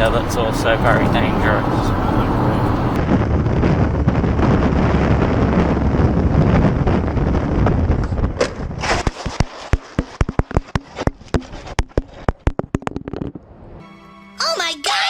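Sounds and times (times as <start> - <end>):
car road and engine noise: 0.0 - 6.2.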